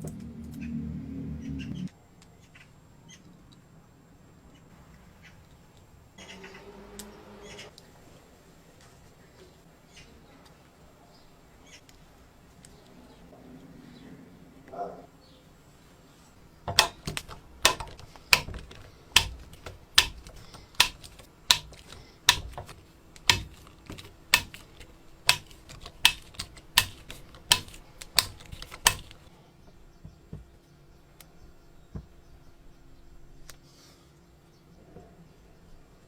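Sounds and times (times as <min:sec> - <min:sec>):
sharp knocks: 0:16.7 - 0:29.3.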